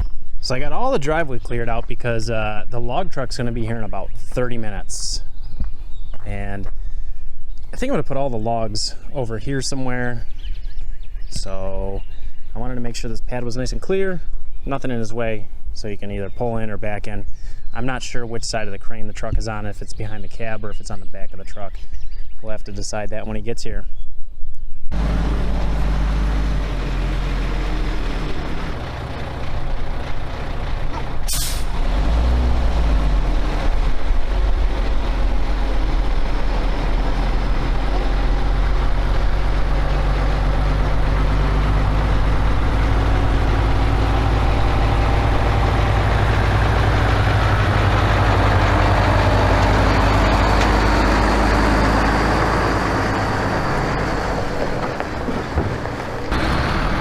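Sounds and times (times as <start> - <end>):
truck diesel engine humming: 24.9 - 57.0
air brakes hissing: 31.3 - 31.8.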